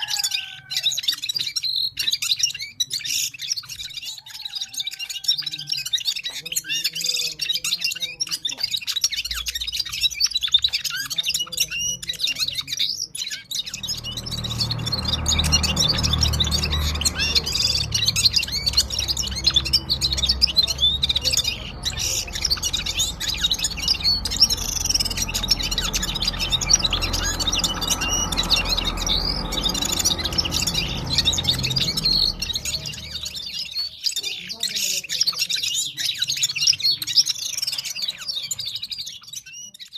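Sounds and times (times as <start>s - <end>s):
songbird chirps and trills: 0.0s - 39.9s
low rumble: 13.6s - 33.8s.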